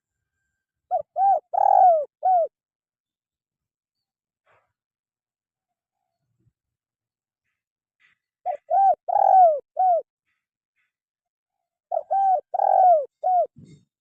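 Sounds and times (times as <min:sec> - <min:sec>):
dove cooing: 0:00.9 - 0:02.6, 0:08.5 - 0:10.1, 0:11.9 - 0:13.6.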